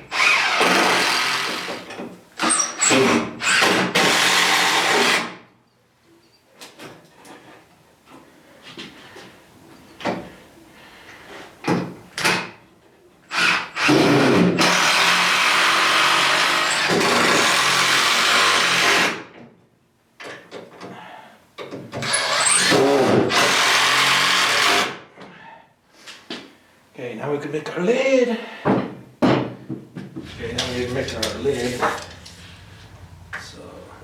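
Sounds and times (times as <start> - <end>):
power drill in wood: 0.0 - 5.4, 13.3 - 19.2, 22.0 - 25.0.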